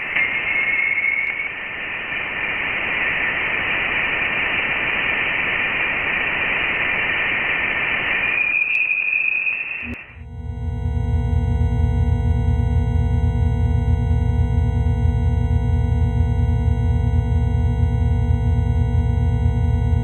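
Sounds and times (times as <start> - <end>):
faint whistling tone: 0.0 - 1.8, 8.1 - 10.1
radio static hiss: 0.0 - 10.2.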